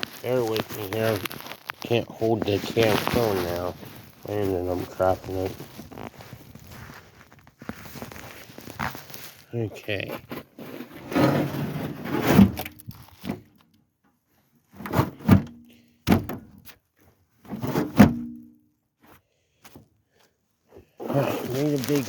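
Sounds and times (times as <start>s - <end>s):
rough scraping and shuffling: 0.0s - 13.5s, 20.7s - 22.0s.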